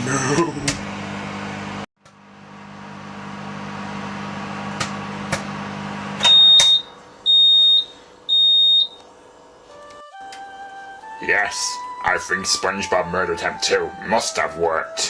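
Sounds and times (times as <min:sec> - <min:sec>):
microwave oven humming: 0:00.0 - 0:14.2
microwave beeping: 0:02.7 - 0:09.1.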